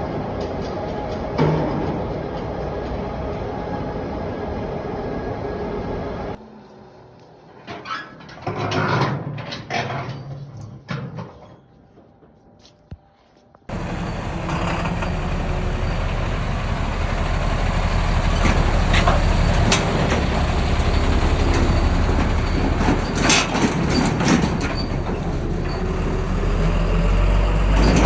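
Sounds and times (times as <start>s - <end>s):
heavy machinery humming: 0.0s - 7.1s, 13.7s - 28.0s
sharp knocks and clanks: 14.4s - 26.4s.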